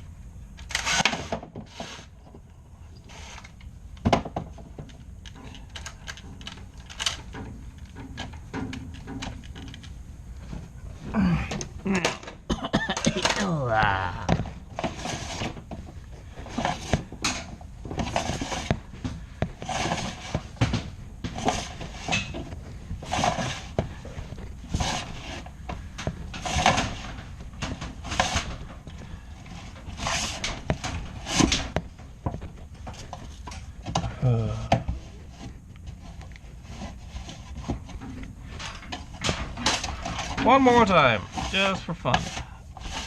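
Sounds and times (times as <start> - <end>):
brush scraping and knocking in duct: 0.8 - 2.2, 14.6 - 33.5, 34.9 - 43.0.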